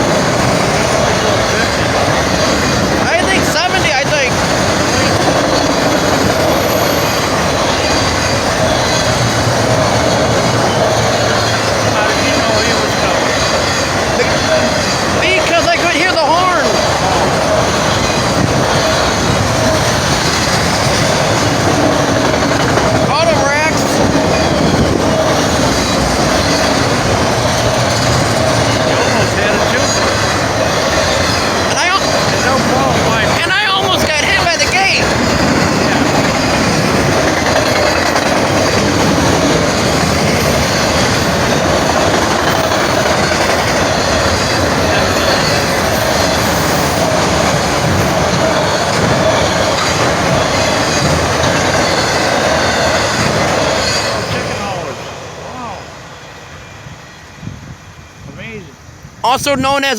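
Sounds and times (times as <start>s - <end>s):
freight train wheels on rail: 0.0s - 59.9s.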